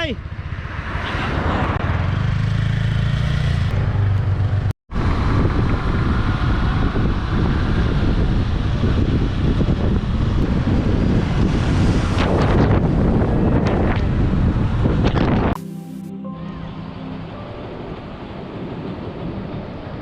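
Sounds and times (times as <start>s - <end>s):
motorcycle engine rumble: 0.0s - 15.7s
wind buffeting microphone: 4.9s - 15.6s.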